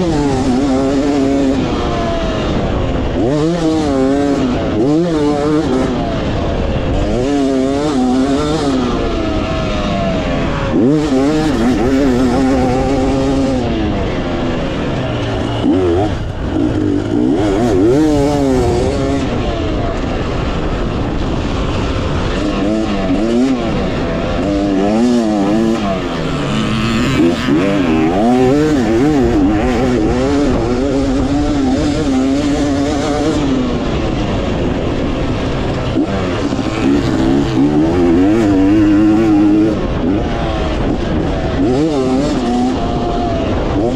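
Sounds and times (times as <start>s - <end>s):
dirt bike engine revving: 0.0s - 43.9s
wind noise: 0.0s - 43.9s.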